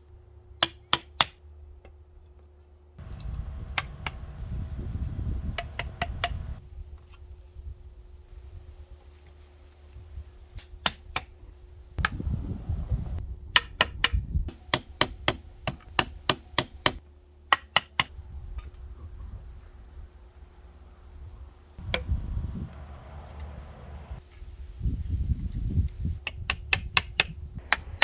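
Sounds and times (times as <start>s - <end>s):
hammering knocks: 3.0s - 4.8s, 5.4s - 6.6s.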